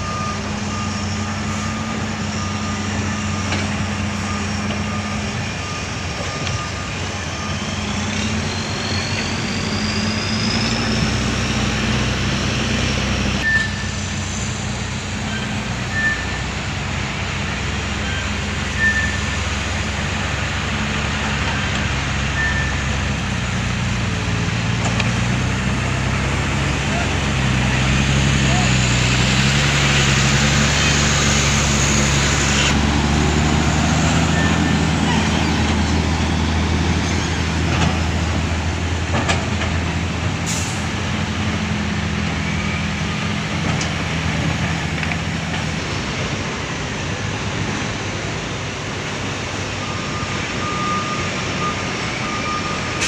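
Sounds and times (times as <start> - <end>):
rising whine: 0.0 - 14.4
reversing beeper: 0.0 - 16.6, 17.4 - 23.4, 25.5 - 38.8, 42.0 - 43.7, 48.7 - 53.0
diesel engines running: 0.0 - 53.0
single short beeps: 13.4 - 13.9.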